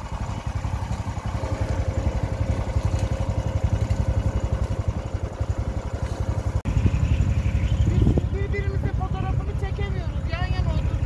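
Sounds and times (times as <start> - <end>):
boat engine chugging: 0.0 - 11.0.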